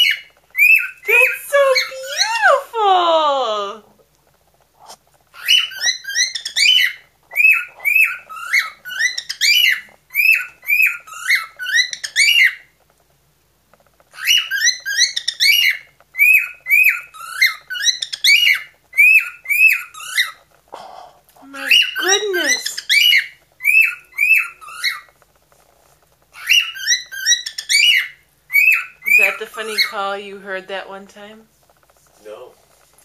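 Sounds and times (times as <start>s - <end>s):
cockatiel whistling: 0.0s - 2.4s, 5.4s - 12.7s, 14.2s - 20.4s, 21.6s - 25.2s, 26.4s - 30.0s.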